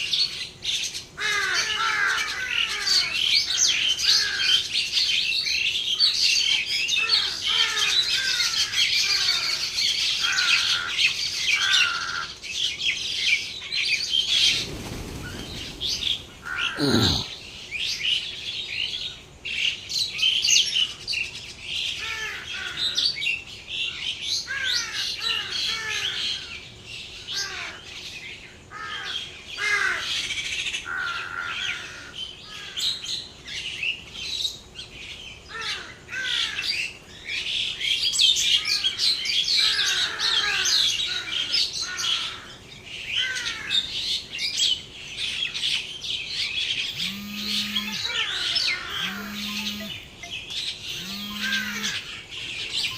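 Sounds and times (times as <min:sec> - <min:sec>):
small birds chirping: 0:00.0 - 0:52.9
cow mooing: 0:48.9 - 0:50.0, 0:51.0 - 0:52.0.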